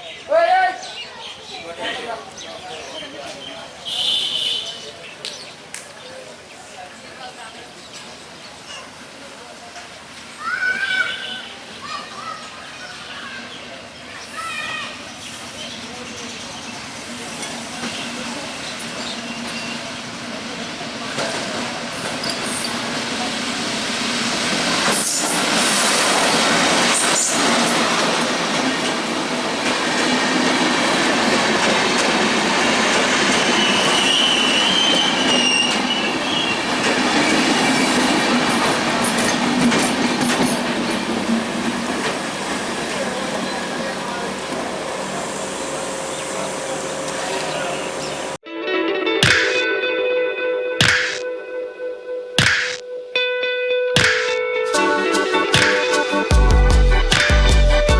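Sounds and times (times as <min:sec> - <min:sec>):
rail and wheel noise: 0:00.0 - 0:48.4
train carriages rumbling: 0:01.0 - 0:48.4
diesel locomotive engine hum: 0:15.0 - 0:48.4.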